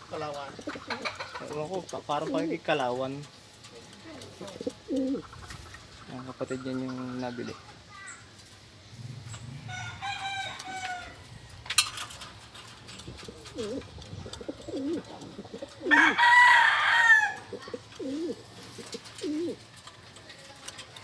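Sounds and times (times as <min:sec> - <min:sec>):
pigeons cooing: 0:00.0 - 0:02.8, 0:04.0 - 0:07.6, 0:08.9 - 0:19.9
rooster crowing: 0:09.6 - 0:11.6, 0:15.8 - 0:17.5.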